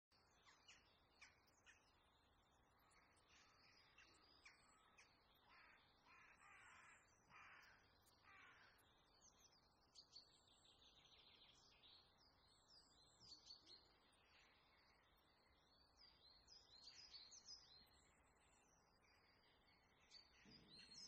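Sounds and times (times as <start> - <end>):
faint bird calls: 2.8 - 8.9.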